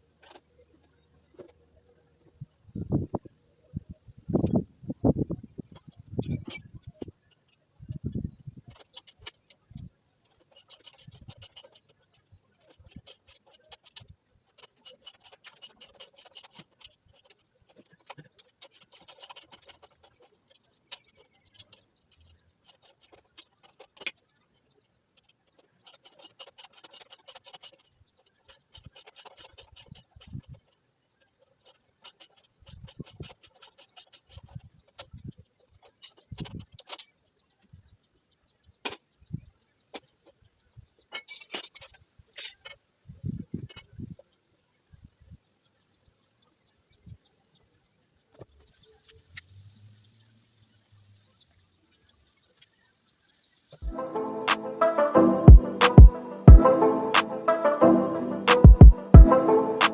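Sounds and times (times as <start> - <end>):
metal clinks: 5.7 - 8.1.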